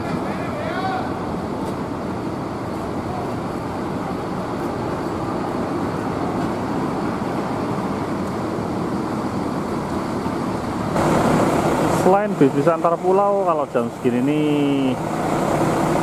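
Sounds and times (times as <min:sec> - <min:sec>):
bus engines running: 0:00.0 - 0:16.0
heavy rain falling: 0:10.9 - 0:16.0.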